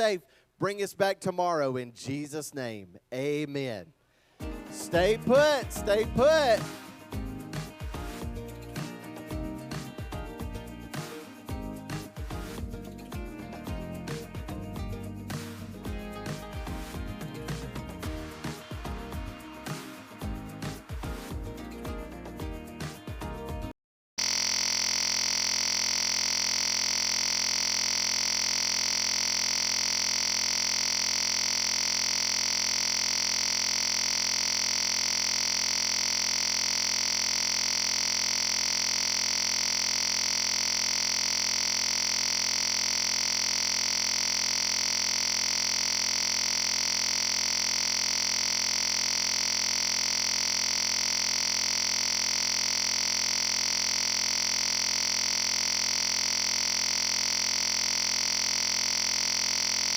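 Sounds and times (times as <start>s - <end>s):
steady electronic tone: 24.2s - 59.9s.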